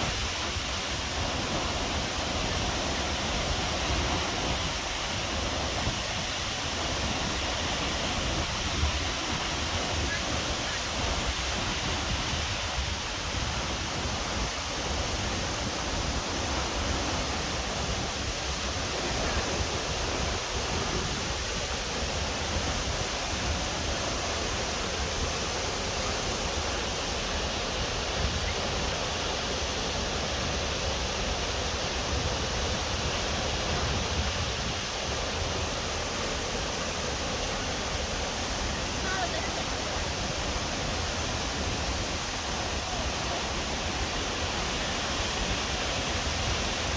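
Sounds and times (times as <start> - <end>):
waterfall roaring: 0.0 - 46.9.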